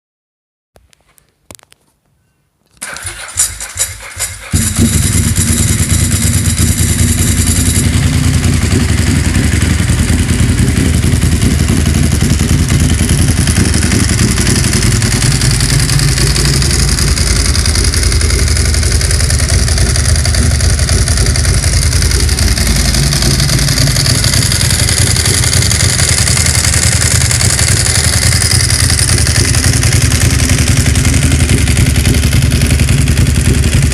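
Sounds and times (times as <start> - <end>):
motorcycle starter cranking: 2.8 - 8.5, 12.9 - 32.1
motorcycle engine idling loudly: 2.8 - 33.9.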